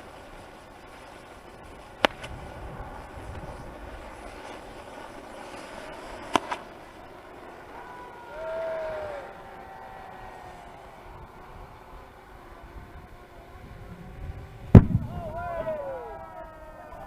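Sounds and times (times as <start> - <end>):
low background rumble: 0.0 - 17.0
fireworks bangs: 14.7 - 15.4.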